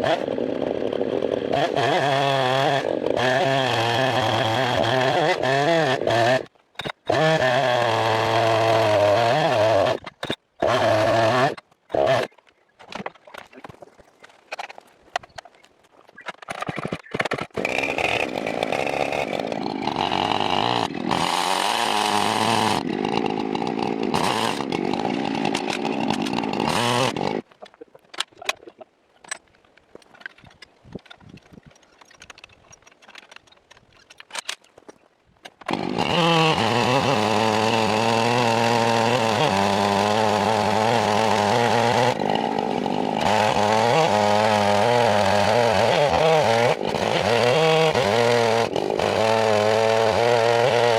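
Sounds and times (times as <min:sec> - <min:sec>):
chainsaw cutting wood: 0:00.0 - 0:12.4, 0:16.2 - 0:27.5, 0:35.5 - 0:50.9.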